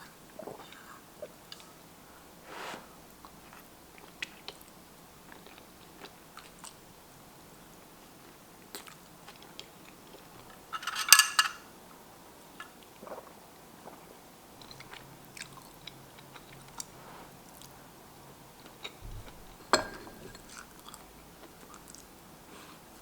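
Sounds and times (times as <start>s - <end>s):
person chewing: 20.4s - 22.1s.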